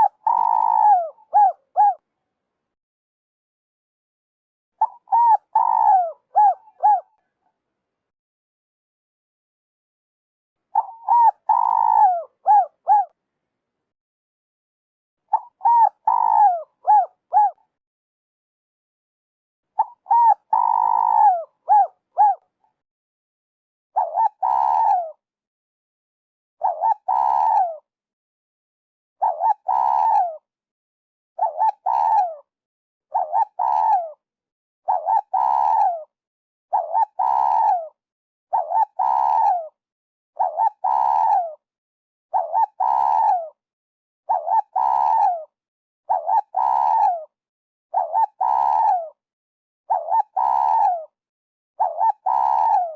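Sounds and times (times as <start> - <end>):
dove cooing: 0.0 - 2.0, 4.8 - 7.2, 10.7 - 13.2, 15.3 - 17.6, 19.8 - 22.4, 24.0 - 25.2, 26.6 - 27.8, 29.2 - 30.4, 31.4 - 32.4, 33.1 - 34.2, 34.9 - 36.1, 36.7 - 39.7, 40.4 - 41.6, 42.3 - 43.5, 44.3 - 45.5, 46.1 - 47.3, 47.9 - 49.1, 49.9 - 51.1, 51.8 - 52.9.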